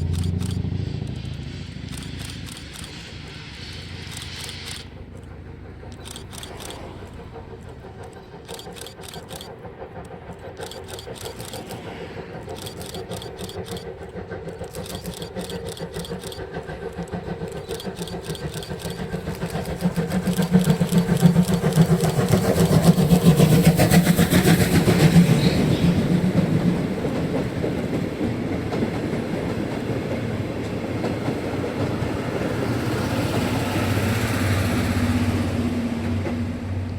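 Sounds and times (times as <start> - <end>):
rapid clicking: 0.0 - 26.4
coaches rolling by: 0.0 - 36.6
steam locomotive exhaust beats: 0.0 - 36.9.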